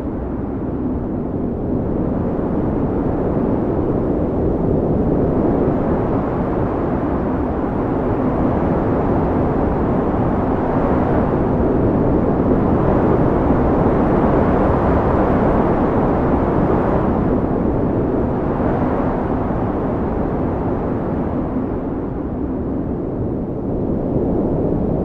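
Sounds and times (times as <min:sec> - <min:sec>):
wind blowing: 0:00.0 - 0:25.0.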